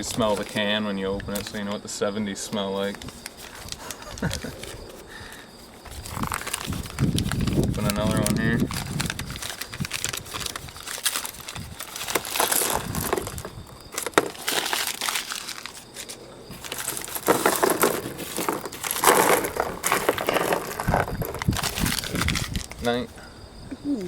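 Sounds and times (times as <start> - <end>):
metal can crunching and clicking: 8.8 - 15.8, 16.5 - 22.8.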